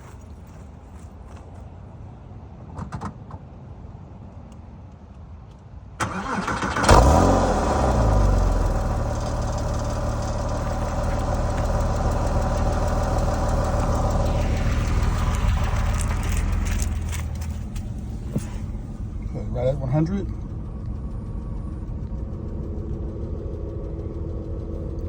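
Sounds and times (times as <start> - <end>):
car engine cold start and idle: 6.0 - 25.0
faint clicks: 20.2 - 25.0.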